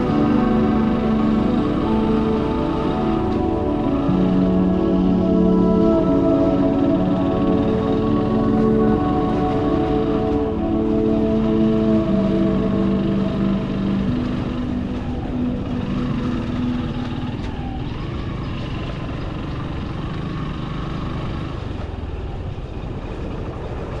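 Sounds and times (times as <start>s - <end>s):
road and wind noise: 0.0s - 24.0s
motorbike engine running: 10.0s - 24.0s.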